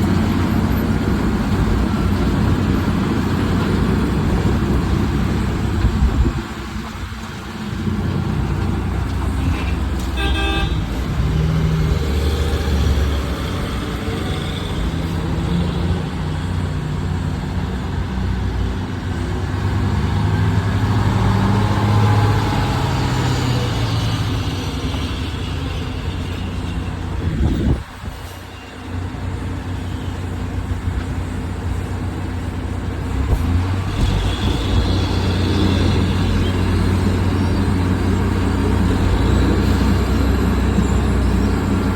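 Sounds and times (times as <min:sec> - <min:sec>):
heavy machinery engine drone: 0:00.0 - 0:41.9
horn toot: 0:09.4 - 0:11.0.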